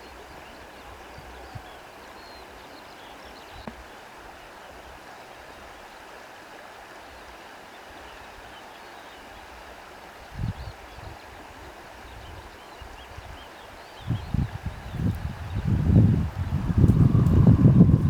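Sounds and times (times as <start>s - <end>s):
reeds rustling in wind: 10.2s - 18.0s.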